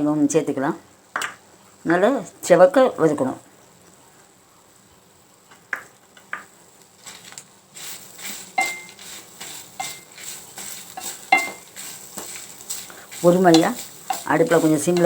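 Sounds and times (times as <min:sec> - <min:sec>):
light sizzle: 0:00.0 - 0:15.0
metal spoon scraping spices: 0:07.0 - 0:15.0
metal clinks against pan: 0:11.3 - 0:11.6.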